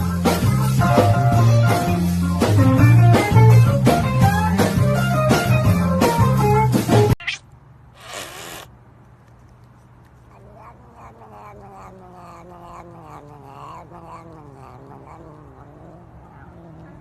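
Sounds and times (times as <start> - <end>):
cat yowling: 10.2 - 17.0.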